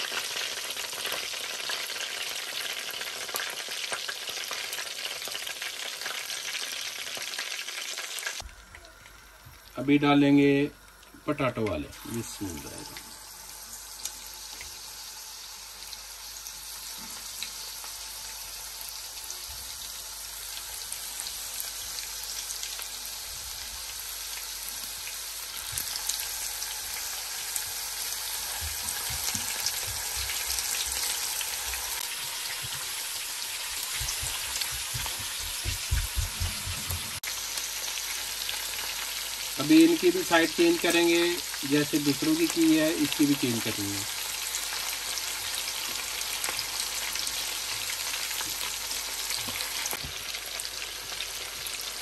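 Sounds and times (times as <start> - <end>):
chicken frying in hot oil: 0.0 - 52.0
soft low knocks: 33.9 - 37.2.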